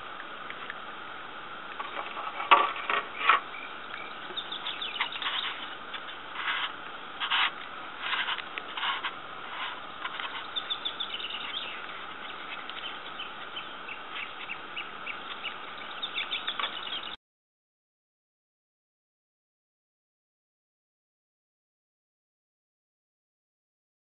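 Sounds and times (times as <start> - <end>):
steady hiss: 0.0 - 17.2
small birds chirping: 1.8 - 17.2.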